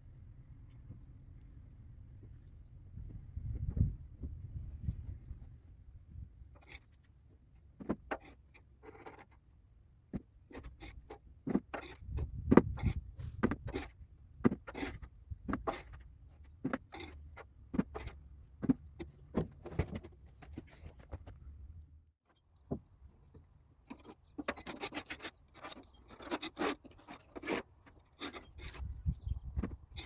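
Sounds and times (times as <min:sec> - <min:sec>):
metallic clicks and scrapes: 0:06.5 - 0:07.1, 0:10.5 - 0:21.4, 0:23.8 - 0:30.0.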